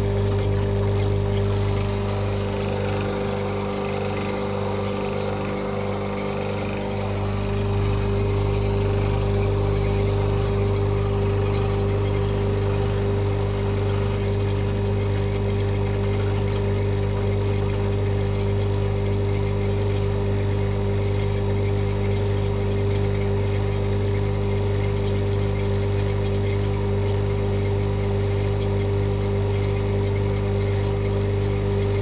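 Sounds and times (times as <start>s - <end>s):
machine humming: 0.0s - 32.0s.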